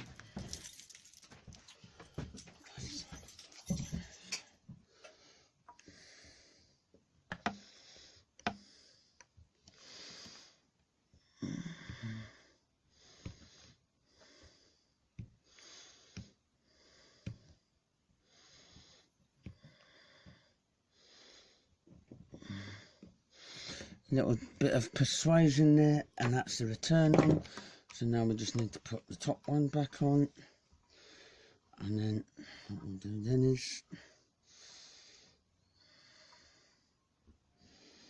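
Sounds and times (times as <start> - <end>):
man breathing through nose: 3.9 - 6.8, 7.5 - 10.7, 11.3 - 17.6, 18.2 - 24.1, 27.5 - 27.9, 30.4 - 31.7, 33.9 - 37.0, 37.6 - 38.0.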